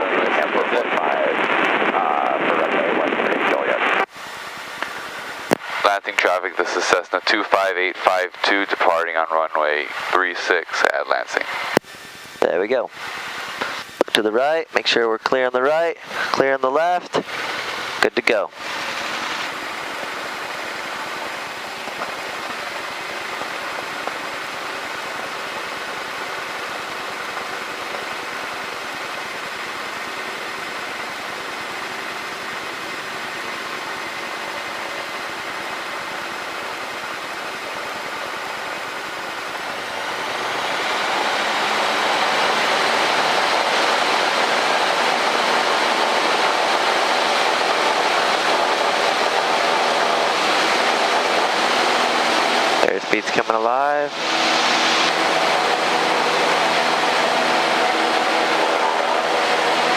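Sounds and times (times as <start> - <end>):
light aircraft engine running: 0.0 - 59.9.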